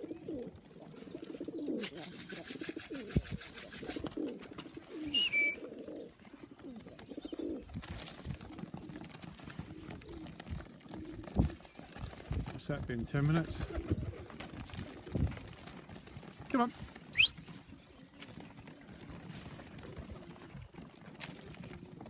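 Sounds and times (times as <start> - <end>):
pigeons cooing: 0.0 - 12.4, 13.4 - 16.0, 16.9 - 22.0
rapid wing flapping: 1.8 - 5.2, 13.3 - 15.8
brief high whistle: 5.1 - 5.6.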